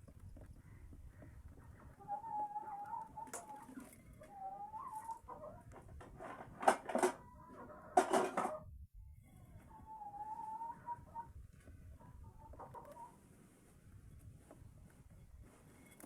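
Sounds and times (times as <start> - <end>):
birds calling: 0.0 - 5.2.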